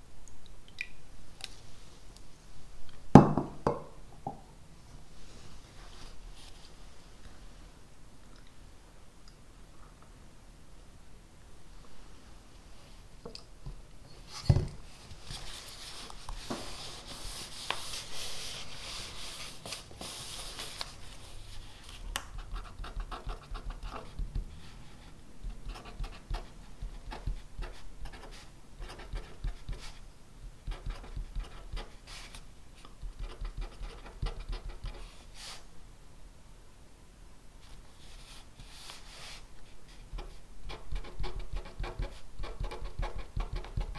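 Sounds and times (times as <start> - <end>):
pen scratching on paper: 22.3 - 30.0, 30.6 - 32.0, 33.0 - 35.1, 40.2 - 43.9.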